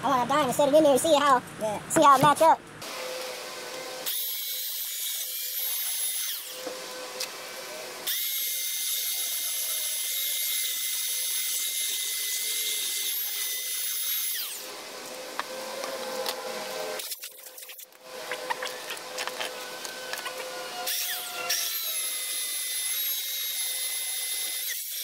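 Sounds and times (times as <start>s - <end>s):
power sander whining: 11.9s - 17.0s, 17.9s - 24.7s.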